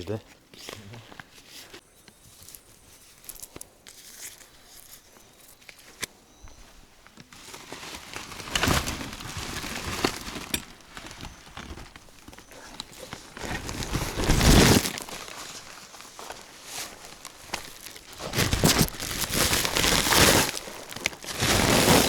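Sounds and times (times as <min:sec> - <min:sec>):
plastic packaging crinkling: 0:07.3 - 0:22.0.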